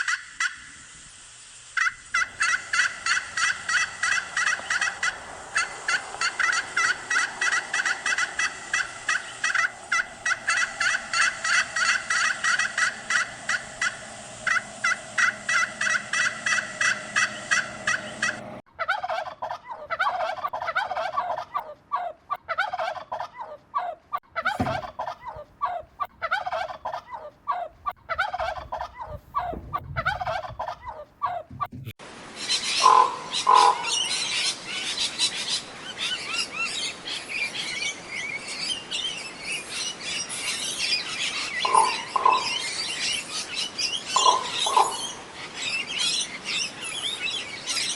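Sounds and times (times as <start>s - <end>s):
bird chattering: 1.8s - 18.6s, 41.3s - 45.3s
gobbling bird calls: 1.8s - 21.4s, 24.4s - 31.8s, 32.8s - 34.3s, 41.3s - 43.4s, 44.0s - 45.5s
high bird chirping: 1.9s - 18.6s.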